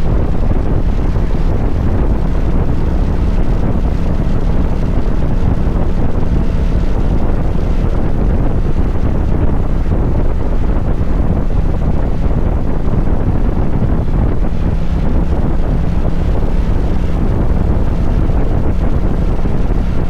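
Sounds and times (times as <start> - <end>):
motorcycle engine drone: 0.0 - 20.0
wind rushing over microphone: 0.0 - 20.0.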